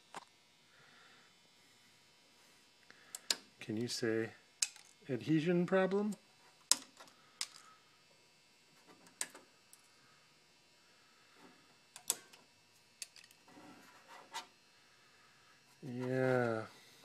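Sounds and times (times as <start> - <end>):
faint clicks and scrapes: 13.0 - 14.6.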